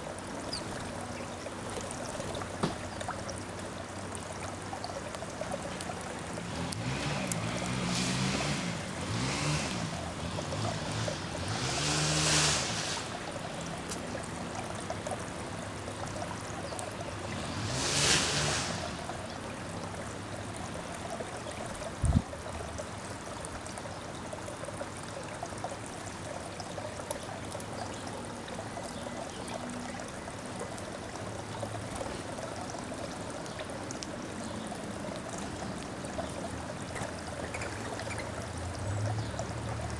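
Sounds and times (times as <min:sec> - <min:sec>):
vehicles passing by: 0:00.0 - 0:39.9
outdoor rushing noise: 0:06.8 - 0:13.3, 0:17.4 - 0:19.2.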